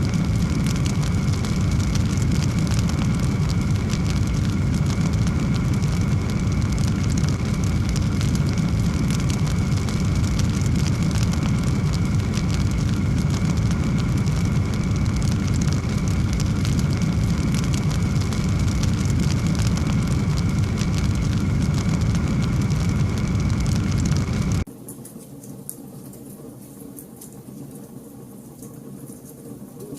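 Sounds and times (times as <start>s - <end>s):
log fire burning: 0.0s - 24.7s
wood crackling and popping: 0.0s - 29.9s.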